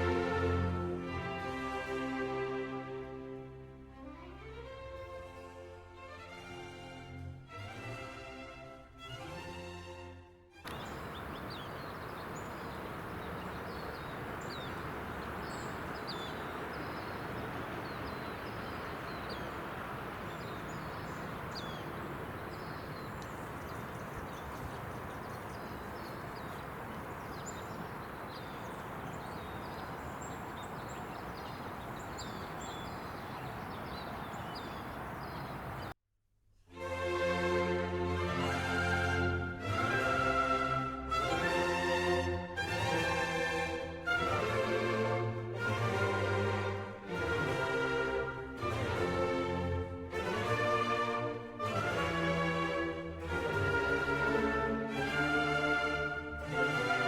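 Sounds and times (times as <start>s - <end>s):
small birds chirping: 10.7s - 36.0s.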